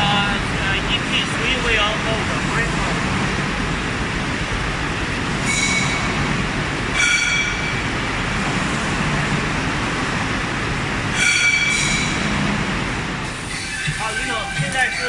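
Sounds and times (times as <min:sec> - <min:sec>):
factory machinery hum: 0:00.0 - 0:15.0
high metallic ringing squeals: 0:05.4 - 0:06.2, 0:07.0 - 0:07.9, 0:11.2 - 0:12.3, 0:13.3 - 0:15.0.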